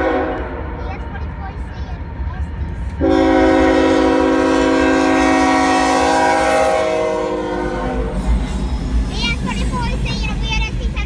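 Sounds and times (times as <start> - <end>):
locomotive air horn: 0.0 - 0.6, 3.0 - 8.2
train rumbling: 0.0 - 11.0.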